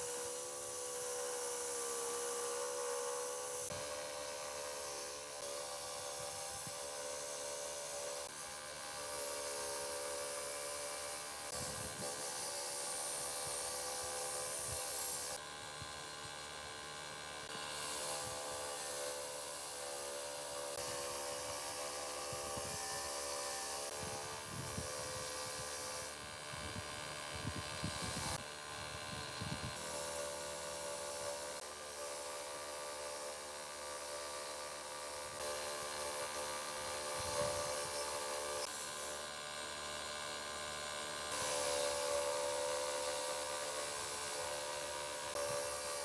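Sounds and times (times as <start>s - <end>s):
motor-driven workshop tool running: 0.0s - 46.0s.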